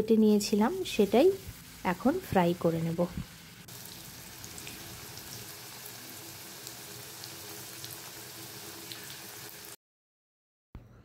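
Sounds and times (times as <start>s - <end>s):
potatoes sizzling in oil: 0.2s - 9.8s.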